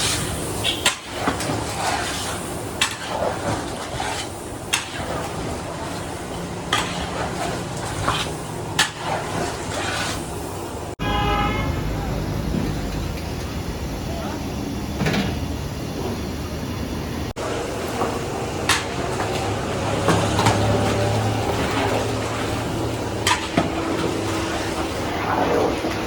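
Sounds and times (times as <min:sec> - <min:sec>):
short honk-like tone: 0:11.0 - 0:12.1.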